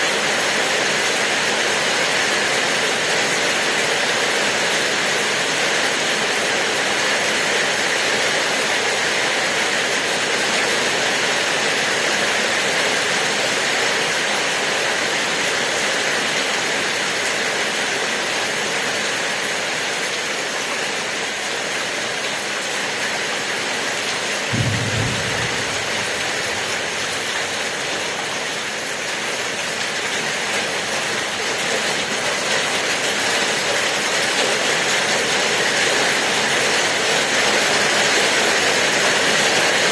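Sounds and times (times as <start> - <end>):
steady rain falling: 0.0 - 39.9
low rumble or thump: 24.5 - 27.6.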